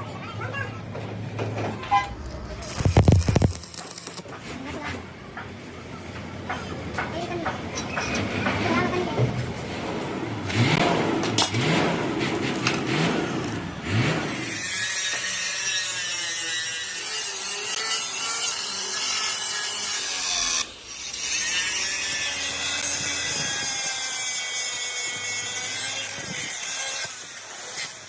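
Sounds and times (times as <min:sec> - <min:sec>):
power tool grinding steel: 0:01.8 - 0:04.4, 0:12.4 - 0:28.0.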